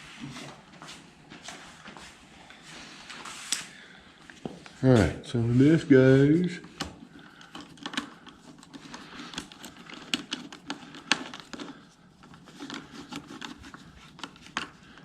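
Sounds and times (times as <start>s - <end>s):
plastic parts clicking: 6.6s - 15.0s.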